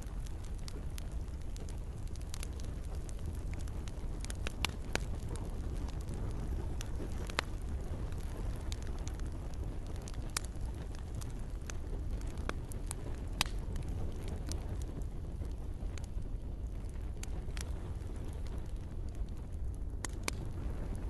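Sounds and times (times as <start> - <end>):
campfire crackling and popping: 0.0 - 21.0.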